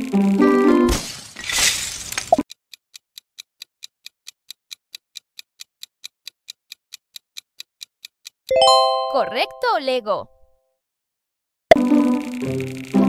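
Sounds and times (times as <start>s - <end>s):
clock ticking: 2.5s - 8.5s.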